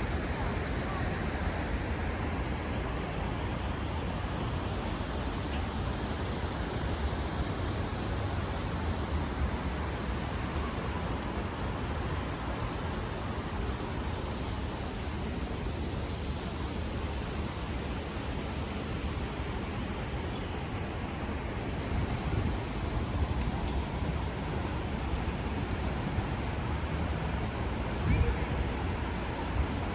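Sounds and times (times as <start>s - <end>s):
city street noise: 0.0s - 29.9s
wind buffeting microphone: 21.8s - 29.9s.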